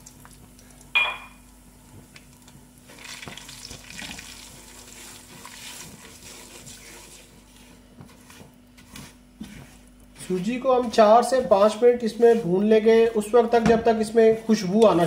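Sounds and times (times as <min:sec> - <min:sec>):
semolina sizzling in ghee: 0:00.0 - 0:08.3
sharp ringing clink: 0:01.0 - 0:01.4
spatula scraping pot: 0:04.0 - 0:13.4.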